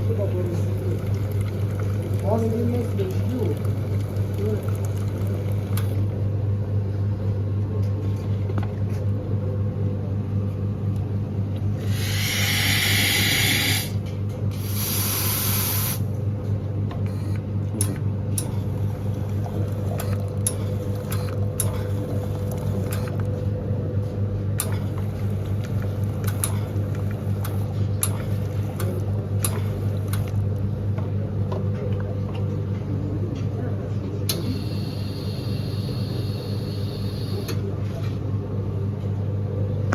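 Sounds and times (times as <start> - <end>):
espresso machine pump hum: 0.0 - 39.2
loud bursts of hiss: 11.8 - 14.0, 14.6 - 16.0.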